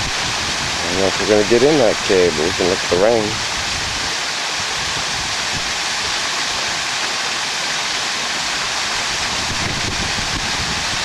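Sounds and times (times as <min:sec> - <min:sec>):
waterfall splashing into pool: 0:00.0 - 0:11.0.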